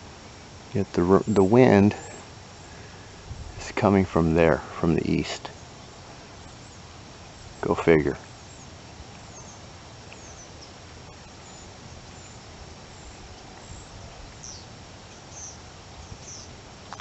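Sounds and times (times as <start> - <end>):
outdoor background noise: 0.0 - 17.0
small bird high chirps: 7.4 - 16.5.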